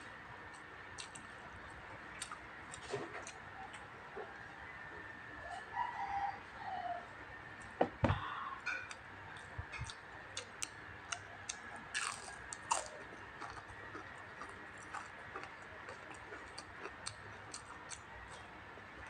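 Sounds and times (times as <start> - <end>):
close chewing: 2.2 - 3.8, 8.8 - 19.0.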